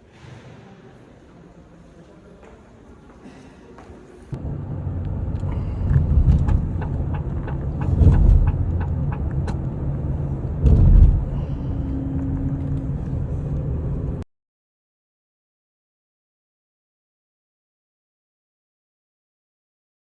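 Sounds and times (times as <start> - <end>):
vehicle engine rumbling: 4.3 - 14.2.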